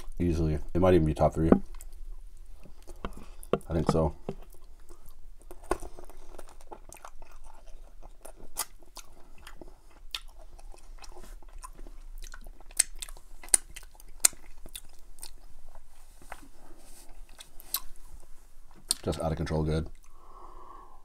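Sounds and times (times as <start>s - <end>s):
chewing crispy chicken: 2.6s - 17.9s.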